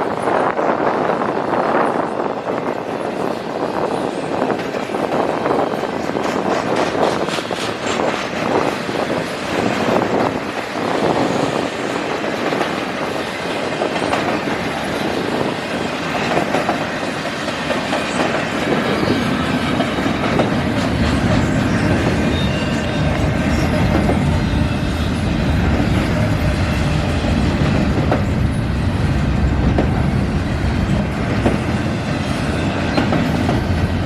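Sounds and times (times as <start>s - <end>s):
freight train wheels clicking: 2.0s - 34.0s.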